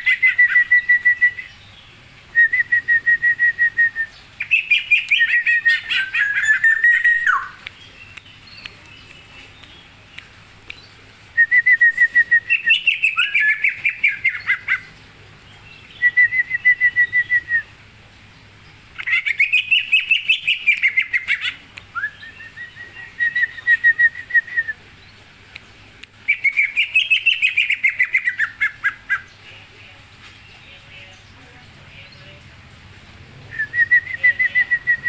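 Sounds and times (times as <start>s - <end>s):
songbird singing rapid notes: 0.0s - 35.0s.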